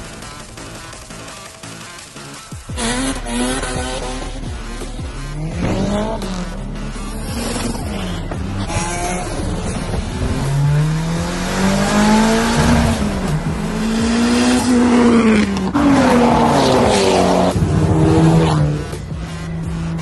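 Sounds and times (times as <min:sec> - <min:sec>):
car engine revving hard: 0:02.7 - 0:19.0.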